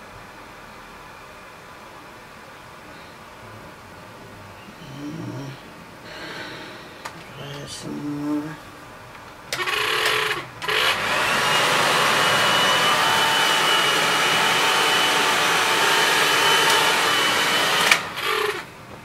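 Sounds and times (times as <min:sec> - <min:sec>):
hair dryer blowing: 0:09.6 - 0:18.8.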